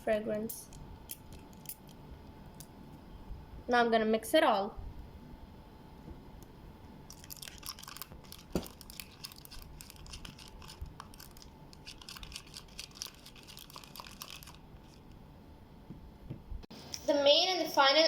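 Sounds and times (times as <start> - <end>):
slime being stirred squelching: 7.1 - 15.1.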